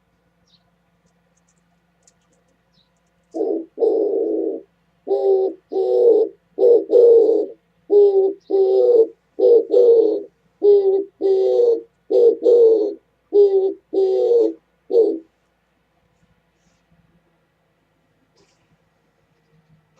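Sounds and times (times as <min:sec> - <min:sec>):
dove cooing: 0:03.3 - 0:15.3.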